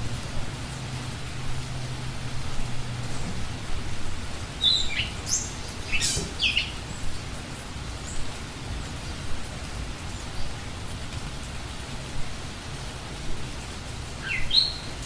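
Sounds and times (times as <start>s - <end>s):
steady background hiss: 0.0s - 15.0s
bird chirping: 4.6s - 7.0s, 14.2s - 15.0s.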